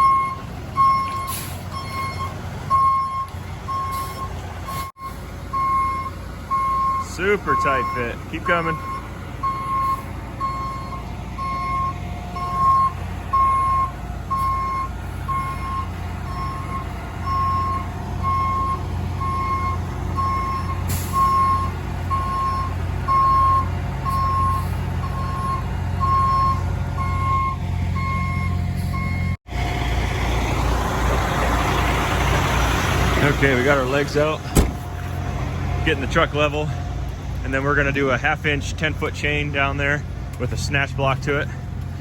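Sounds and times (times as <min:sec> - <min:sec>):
truck backup alarm beeping: 0:00.0 - 0:29.9, 0:31.6 - 0:35.0
diesel engine running: 0:00.0 - 0:42.0.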